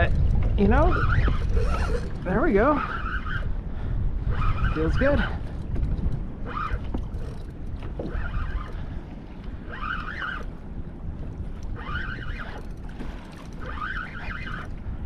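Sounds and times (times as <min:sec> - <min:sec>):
wind buffeting microphone: 0:00.0 - 0:15.0
fishing reel whirring: 0:00.8 - 0:03.5, 0:06.2 - 0:08.9, 0:09.7 - 0:10.6, 0:11.6 - 0:14.7.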